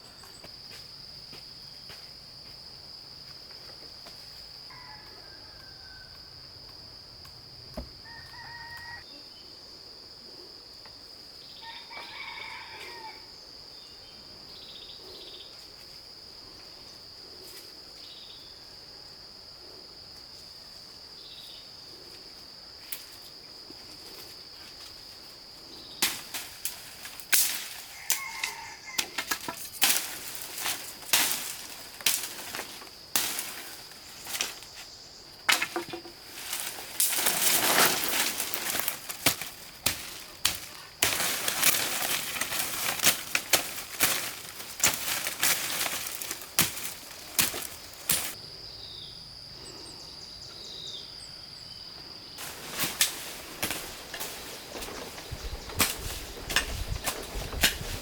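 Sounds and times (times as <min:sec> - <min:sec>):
high insect drone: 0:00.0 - 0:58.0
scraping and rustling noise: 0:26.5 - 0:48.4, 0:52.4 - 0:58.0.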